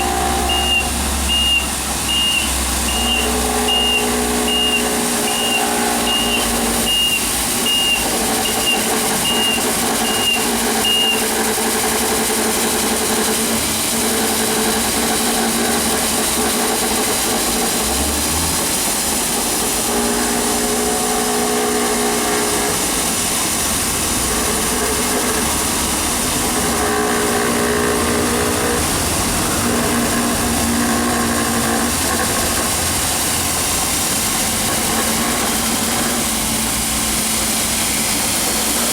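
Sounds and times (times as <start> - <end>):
reversing alarm beeping: 0.0 - 11.3
floor scrubber motor hum: 0.0 - 38.9.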